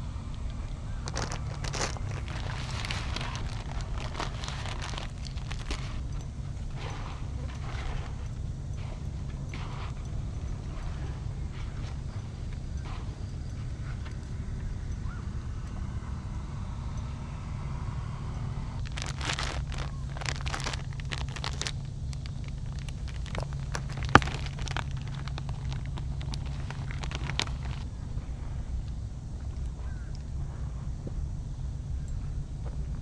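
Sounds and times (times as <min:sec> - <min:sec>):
low rumble: 0:00.0 - 0:06.8
rustling and clicking handling noises: 0:00.2 - 0:14.4, 0:18.8 - 0:28.2.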